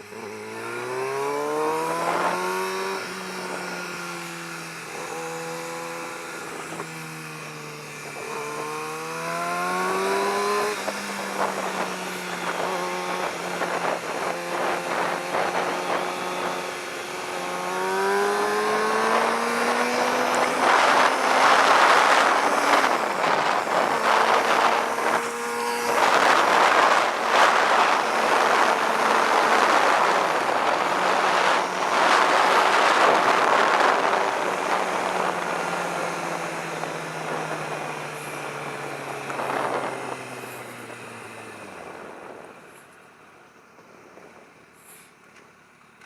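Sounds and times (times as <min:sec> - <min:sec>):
motorcycle engine: 0:00.0 - 0:46.0
wind rush: 0:09.9 - 0:42.6.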